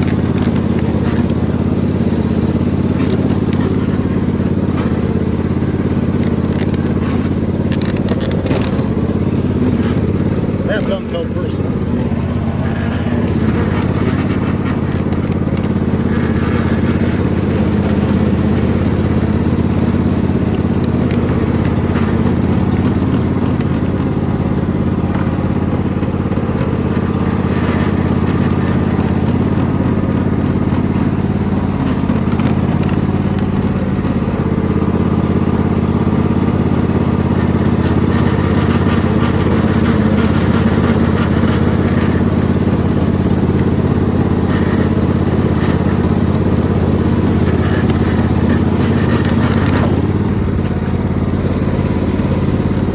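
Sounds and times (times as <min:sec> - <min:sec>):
riding lawn mower engine running: 0:00.0 - 0:52.9.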